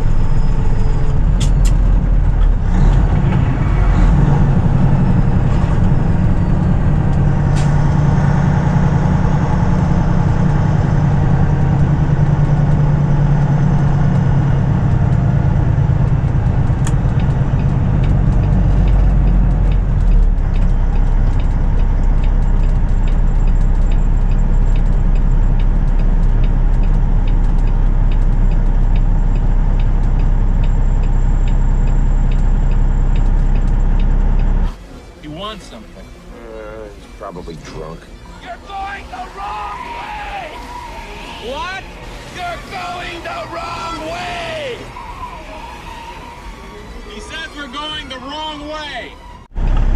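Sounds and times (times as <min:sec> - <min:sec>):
diesel truck engine running: 0:00.0 - 0:49.9
light ticking: 0:04.4 - 0:34.7.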